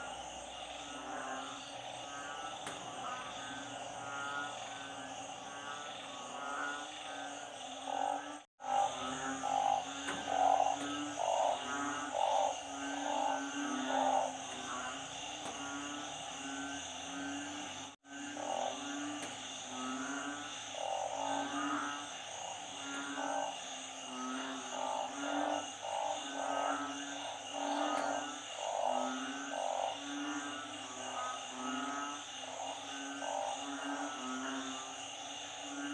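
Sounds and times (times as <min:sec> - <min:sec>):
frogs croaking: 0:00.0 - 0:35.9.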